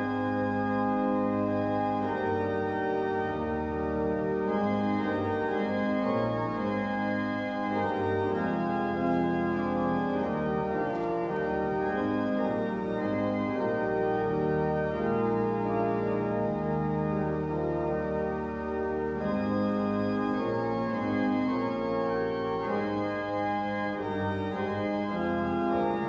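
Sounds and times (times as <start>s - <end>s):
church organ chords: 0.0s - 26.0s.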